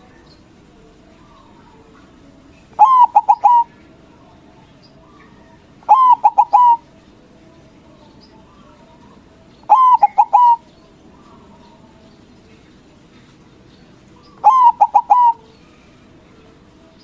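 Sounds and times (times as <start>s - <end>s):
dove cooing: 2.8s - 3.7s, 5.8s - 6.9s, 9.7s - 11.5s, 14.2s - 15.5s.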